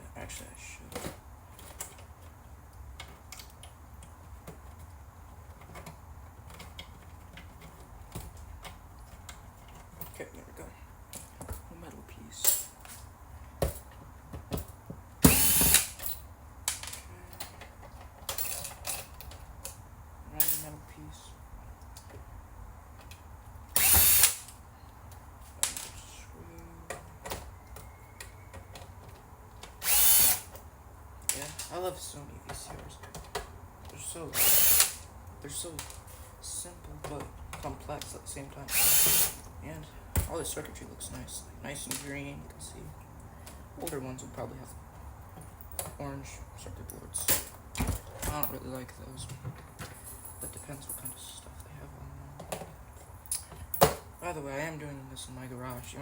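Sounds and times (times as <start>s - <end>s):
low steady hum: 0.0s - 56.0s
parts clicking and knocking: 12.4s - 20.8s, 22.9s - 40.5s
cordless drill whine: 15.2s - 16.0s, 23.8s - 24.5s, 29.8s - 30.5s, 34.3s - 35.0s, 38.7s - 39.4s
metal parts and tools clicking: 15.3s - 19.5s, 29.0s - 30.6s, 34.3s - 35.1s.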